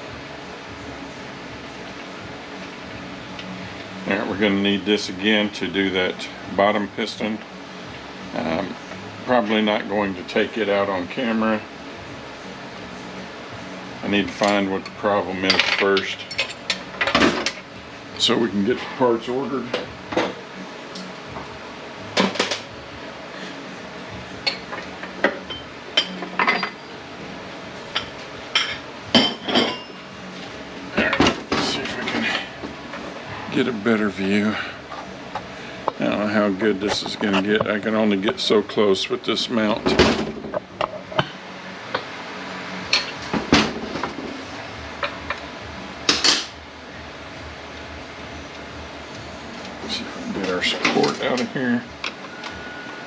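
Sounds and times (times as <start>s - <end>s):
metal tools clanking: 14.3s - 17.6s, 24.4s - 26.9s, 27.9s - 30.0s
metal tools clinking: 15.5s - 17.2s, 25.5s - 26.9s.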